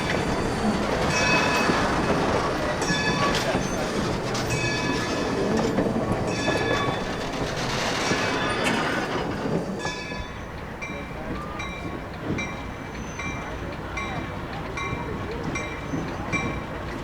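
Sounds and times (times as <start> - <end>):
wheels squeaking: 0.0 - 10.4
railroad cars rolling on track: 0.0 - 17.0.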